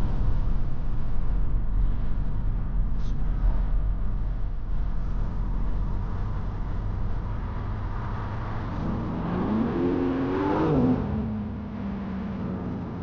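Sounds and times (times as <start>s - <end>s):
road noise inside car: 0.0s - 13.0s
car engine accelerating: 5.0s - 13.0s.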